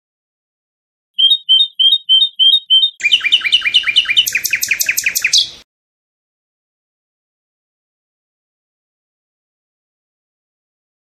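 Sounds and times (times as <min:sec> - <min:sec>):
songbird singing: 0:01.2 - 0:05.7.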